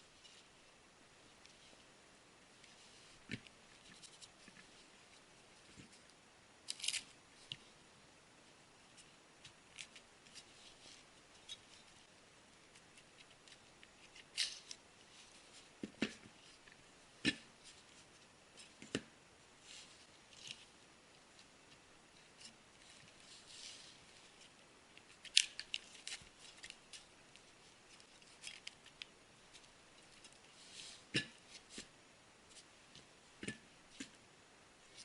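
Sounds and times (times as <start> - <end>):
plastic clicks and rustles: 24.4 - 30.5.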